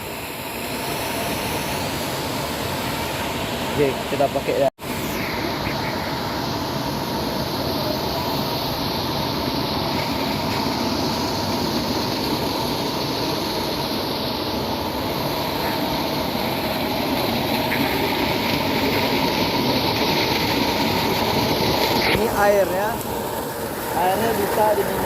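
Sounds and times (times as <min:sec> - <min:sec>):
spring water running: 0:05.8 - 0:25.0.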